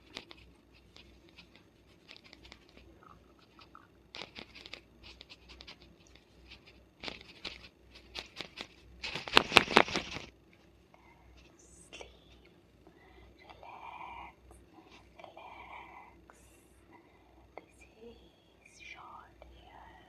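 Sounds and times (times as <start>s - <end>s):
fingernails scratching through hair: 0.0s - 10.3s.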